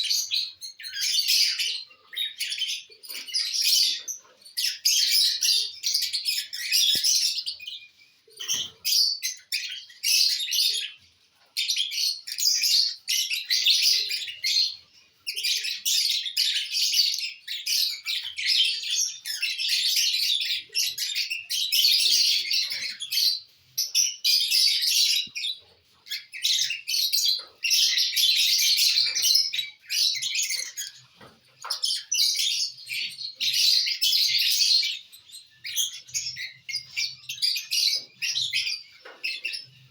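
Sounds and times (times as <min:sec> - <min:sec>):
lovebirds chirping: 0:00.0 - 0:39.9.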